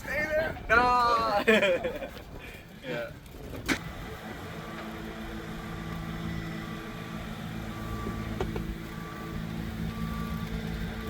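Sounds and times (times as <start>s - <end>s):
vehicle engine running: 2.6s - 11.0s
reversing beeper: 5.5s - 11.0s.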